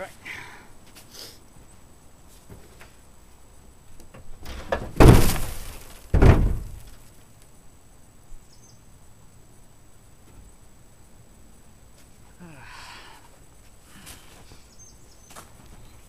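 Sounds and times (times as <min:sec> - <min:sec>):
heavy thuds: 0:04.1 - 0:07.0.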